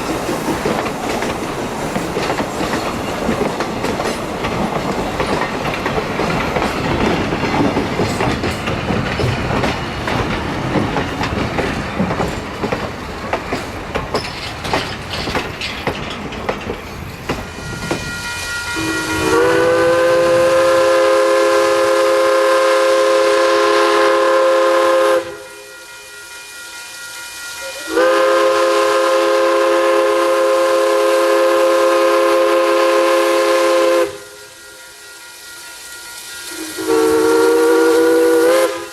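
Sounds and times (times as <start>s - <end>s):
rail clatter and clicking: 0.0s - 18.2s
steam locomotive moving: 0.0s - 38.9s
steam whistle blasts: 17.6s - 38.9s.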